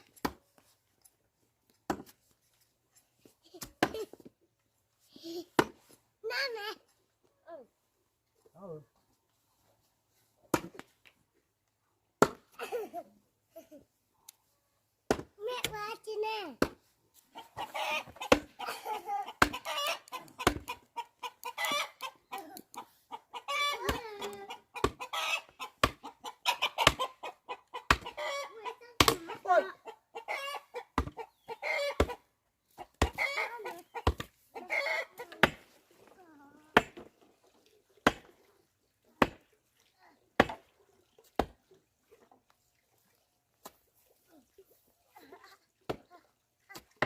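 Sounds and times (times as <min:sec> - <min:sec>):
chickens clucking: 0:17.3 - 0:35.6
rooster: 0:19.5 - 0:20.5, 0:24.5 - 0:28.8, 0:30.2 - 0:32.2, 0:32.8 - 0:35.3.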